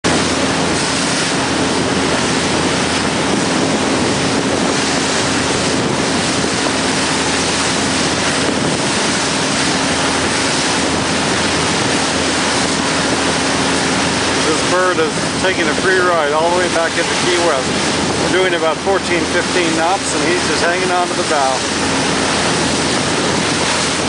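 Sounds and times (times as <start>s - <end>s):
boat engine hum: 0.0s - 24.0s
rush of wind and water: 0.0s - 24.0s.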